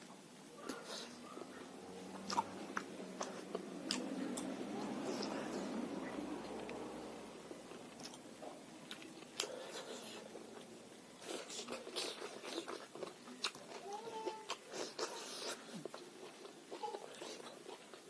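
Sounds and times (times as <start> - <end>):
crunchy chewing bites: 2.1 - 4.5.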